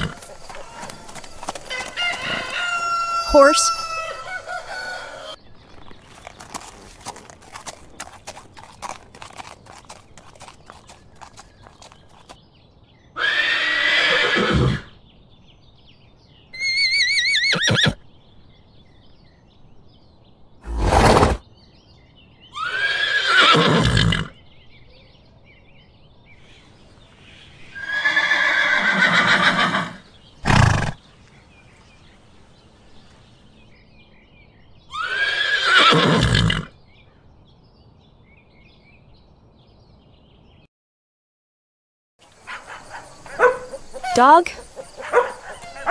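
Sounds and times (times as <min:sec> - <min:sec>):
horse neighing: 0:00.0 - 0:05.4, 0:13.2 - 0:14.9, 0:16.6 - 0:18.0, 0:20.7 - 0:21.4, 0:22.6 - 0:24.3, 0:27.8 - 0:31.0, 0:34.9 - 0:36.7, 0:42.5 - 0:45.9.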